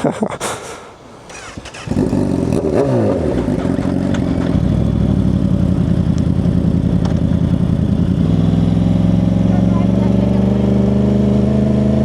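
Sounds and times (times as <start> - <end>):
motorcycle engine running: 1.3 - 12.0.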